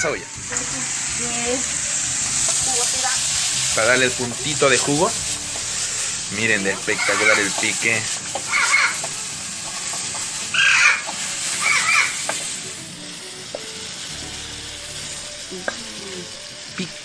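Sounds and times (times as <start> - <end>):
food sizzling in a wok: 0.0 - 17.0
wooden spoon stirring food: 2.2 - 12.8.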